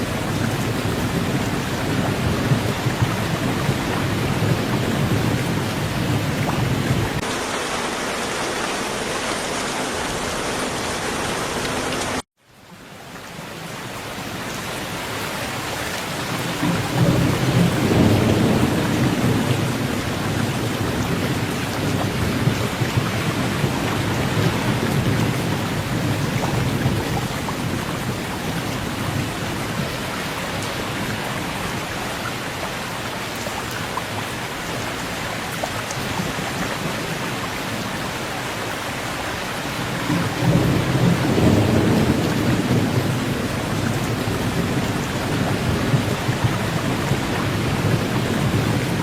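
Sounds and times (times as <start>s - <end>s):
thunder rumbling: 0.0s - 7.3s, 16.4s - 31.5s, 39.6s - 49.0s
steady rain: 0.0s - 49.0s.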